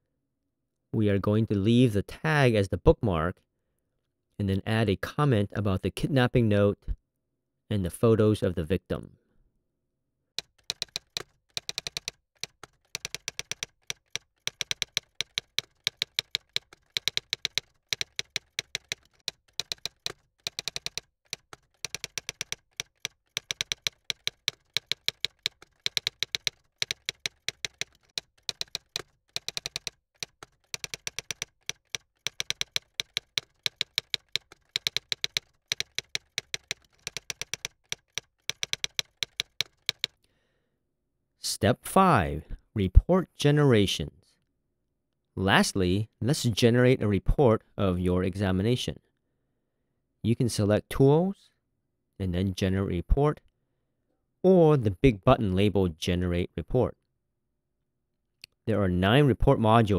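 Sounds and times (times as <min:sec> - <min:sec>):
keyboard typing clicks: 0:10.4 - 0:40.2.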